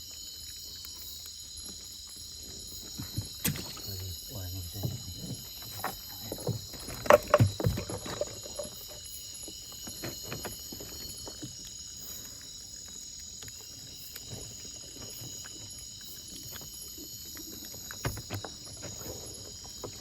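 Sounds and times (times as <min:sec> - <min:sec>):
knocks and thumps in a boat: 0:02.5 - 0:11.6, 0:17.6 - 0:20.0.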